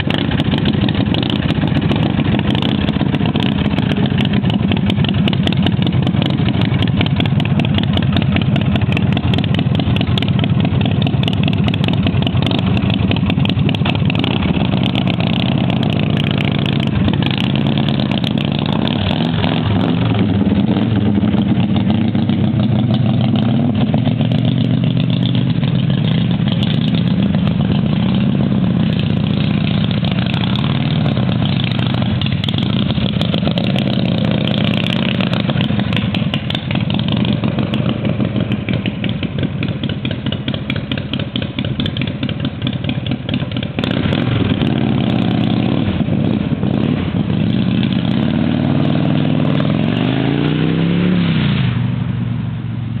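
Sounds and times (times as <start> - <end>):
motorcycle engine revving: 0.0 - 52.4.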